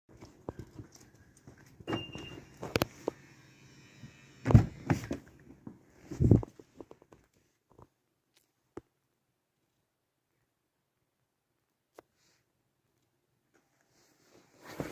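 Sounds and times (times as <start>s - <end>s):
electronic beep: 1.9s - 2.6s.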